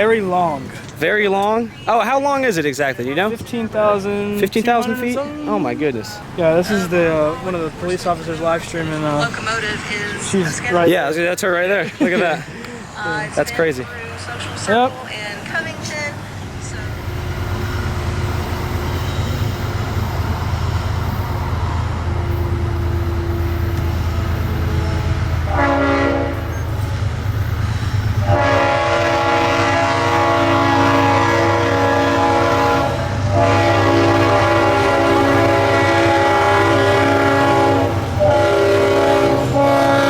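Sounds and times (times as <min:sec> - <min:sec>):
diesel locomotive rumbling: 0:00.0 - 0:40.0
train horn blasts: 0:22.2 - 0:26.8, 0:28.2 - 0:40.0.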